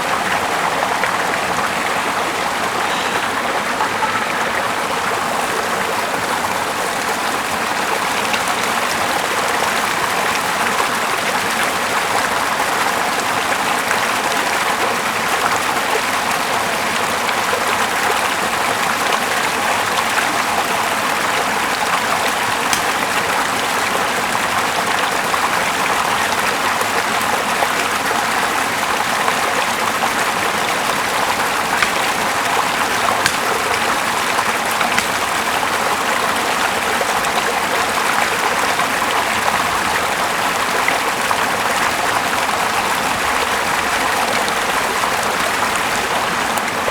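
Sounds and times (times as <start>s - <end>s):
small river flowing: 0.0s - 46.9s.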